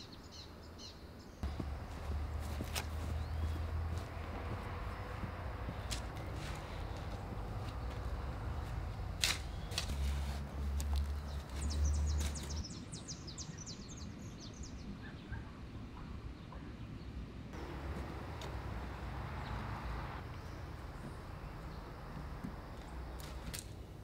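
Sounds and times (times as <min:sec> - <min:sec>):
bird chirping: 0:00.0 - 0:10.0, 0:10.9 - 0:15.4
outdoor ambience: 0:00.0 - 0:24.0
hoe chopping into soil: 0:02.4 - 0:04.1, 0:05.7 - 0:12.6.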